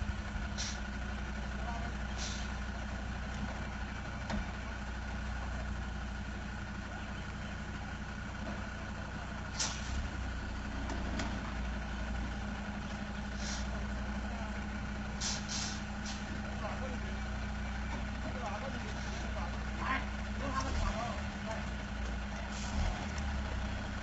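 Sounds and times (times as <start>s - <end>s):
truck engine running: 0.0s - 24.0s
short hisses: 0.6s - 0.9s, 2.2s - 2.6s, 9.6s - 10.0s, 13.3s - 13.7s, 15.2s - 16.3s.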